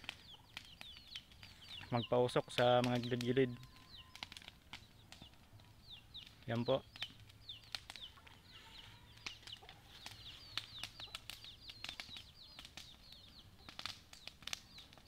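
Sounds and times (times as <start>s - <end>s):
birds chirping: 0.0s - 15.0s
sharp crackles and clicks: 0.0s - 15.0s.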